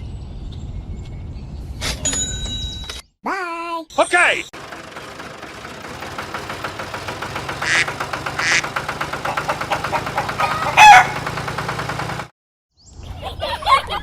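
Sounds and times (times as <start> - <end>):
small engine chugging: 4.6 - 12.3
chicken call: 7.6 - 11.3.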